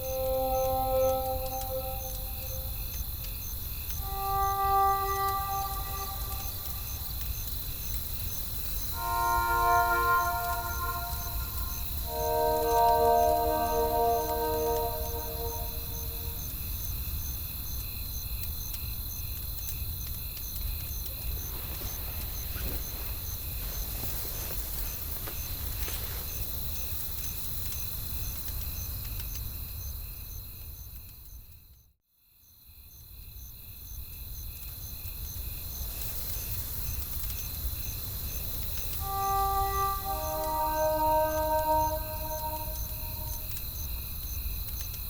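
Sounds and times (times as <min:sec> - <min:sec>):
crickets chirping: 0:00.0 - 0:16.6, 0:38.1 - 0:43.8.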